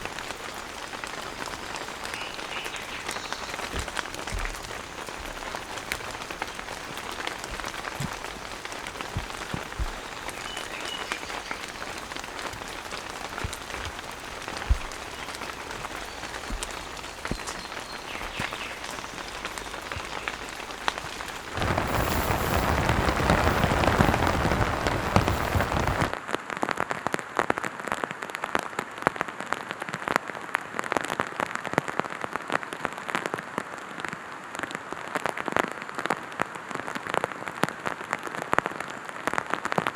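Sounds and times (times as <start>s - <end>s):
rain falling: 0.0s - 26.2s
raindrops striking close by: 0.0s - 26.2s.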